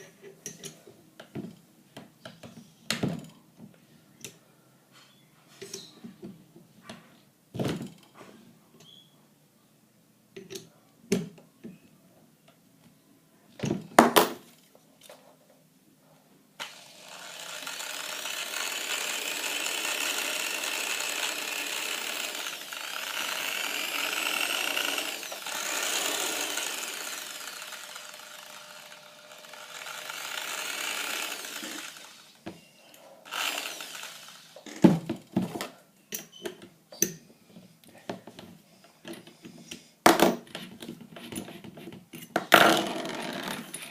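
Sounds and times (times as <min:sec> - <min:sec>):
electric drill running: 0:16.6 - 0:32.4, 0:33.2 - 0:34.7.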